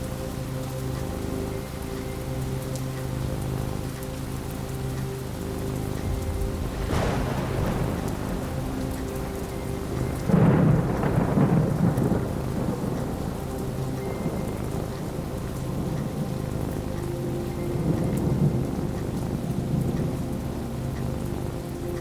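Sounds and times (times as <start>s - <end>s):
steady rain: 0.0s - 22.0s
thunder crackling: 4.9s - 22.0s
thunder rumbling: 5.1s - 22.0s.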